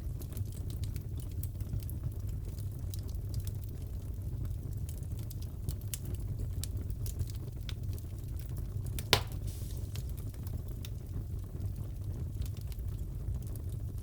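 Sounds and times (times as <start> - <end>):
wood fire crackling: 0.0 - 14.0
loud pop from fire: 9.0 - 10.4.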